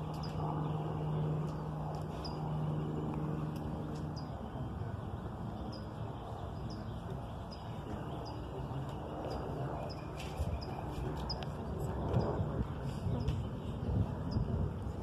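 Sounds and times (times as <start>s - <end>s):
low outdoor rumble: 0.0s - 15.0s
low steady hum: 0.0s - 15.0s
small bird chirping: 3.9s - 12.2s.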